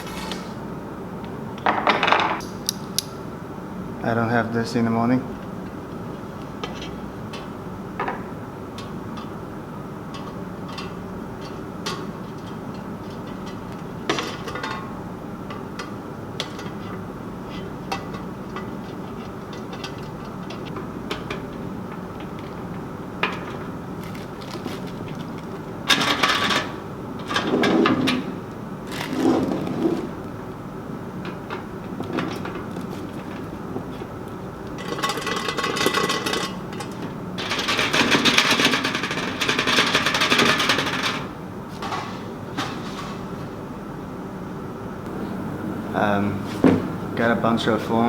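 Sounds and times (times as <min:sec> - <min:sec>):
air conditioner humming: 0:00.0 - 0:48.0
clatter and rustle: 0:23.3 - 0:28.2.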